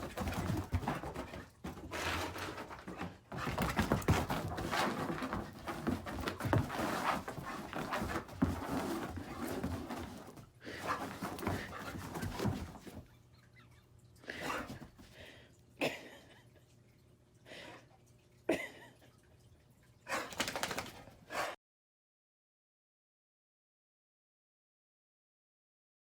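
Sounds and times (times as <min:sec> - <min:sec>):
dog claws scrabbling on hard floor: 0:00.0 - 0:13.0, 0:20.3 - 0:21.0.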